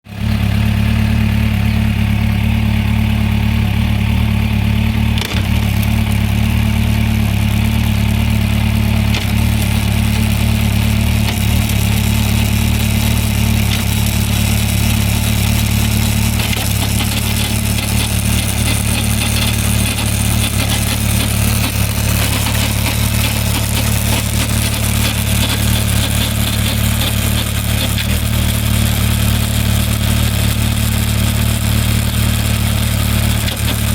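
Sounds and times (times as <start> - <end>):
motorcycle engine running steadily: 0.0 - 33.9
strange mechanical noise: 15.4 - 28.4.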